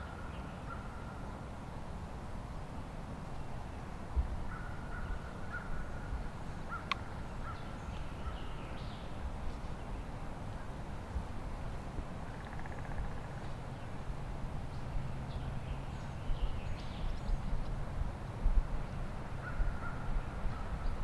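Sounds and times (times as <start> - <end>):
faint bird calls: 0.0 - 1.2, 4.4 - 10.7, 12.2 - 14.0, 18.8 - 21.0
low wind rumble: 0.0 - 21.0.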